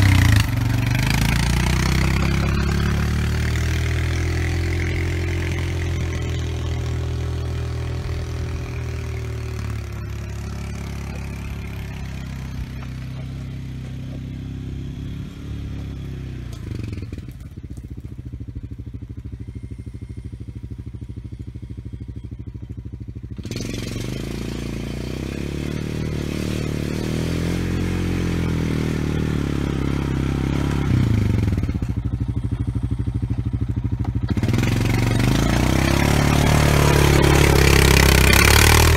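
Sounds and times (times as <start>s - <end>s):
blade scraping dirt and gravel: 0.0s - 18.4s
small vehicle engine running: 0.0s - 38.9s.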